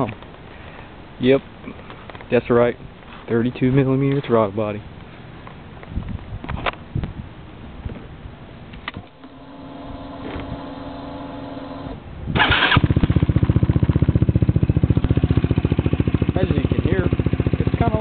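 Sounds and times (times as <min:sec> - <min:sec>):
steady electrical hum: 0:07.4 - 0:12.3
scooter engine cranking: 0:09.2 - 0:16.2
scooter engine idling: 0:09.2 - 0:18.0.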